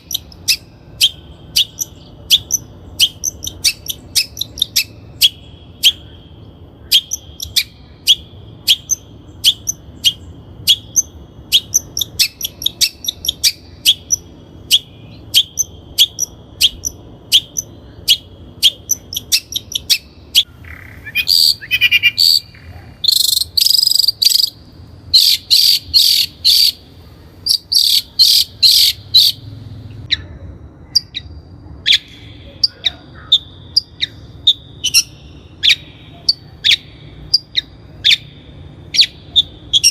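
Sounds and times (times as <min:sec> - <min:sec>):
shrike calling: 0:00.0 - 0:39.9.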